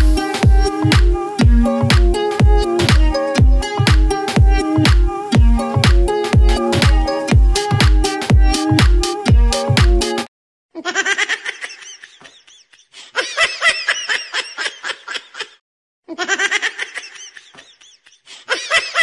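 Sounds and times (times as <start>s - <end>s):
high-pitched laughter: 10.8s - 19.0s.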